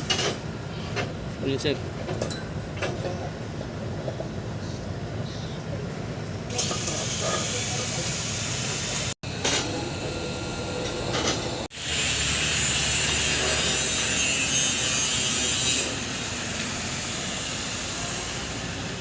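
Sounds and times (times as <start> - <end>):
welding arc hissing: 6.5 - 9.2, 11.7 - 19.0.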